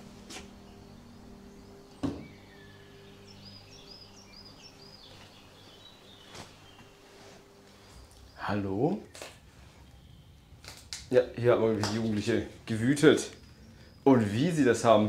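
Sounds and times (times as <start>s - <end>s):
small bird chirping: 0.2s - 7.0s, 12.0s - 15.0s
thump: 2.0s - 2.3s.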